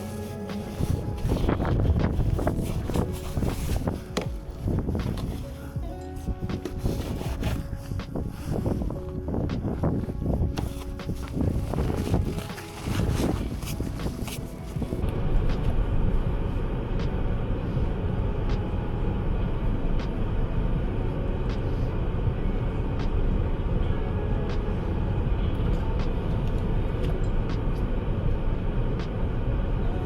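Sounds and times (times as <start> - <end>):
car engine rumbling: 0.0 - 30.0.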